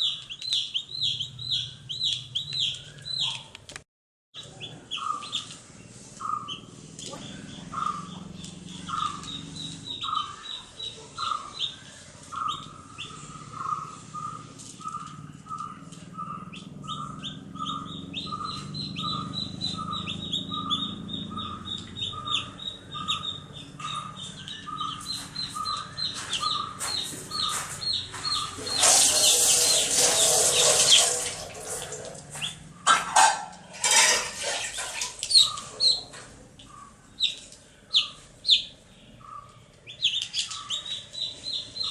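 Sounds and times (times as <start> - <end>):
baby chicks peeping: 0.0 - 3.8, 4.4 - 31.1, 32.3 - 32.7, 35.2 - 41.9
loud sharp calls: 6.2 - 31.8.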